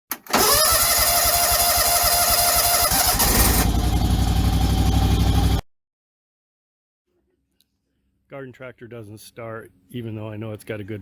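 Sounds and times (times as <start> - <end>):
garden tractor engine running: 0.2 - 5.6.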